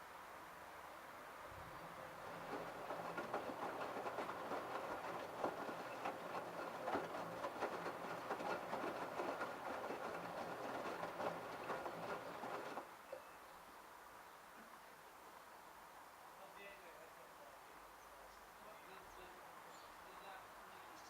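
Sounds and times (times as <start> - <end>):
water sloshing: 1.8 - 12.8
clatter of splashes and knocks: 1.9 - 12.8
washing machine drum turning: 2.0 - 12.8.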